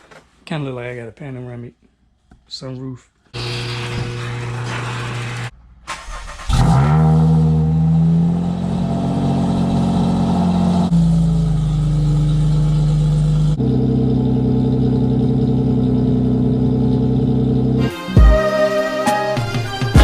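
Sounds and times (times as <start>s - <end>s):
car engine accelerating: 3.4s - 18.1s.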